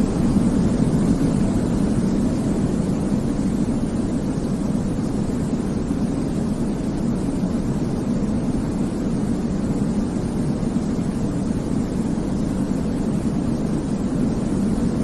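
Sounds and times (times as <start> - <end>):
low rumbling white noise: 0.0 - 15.0.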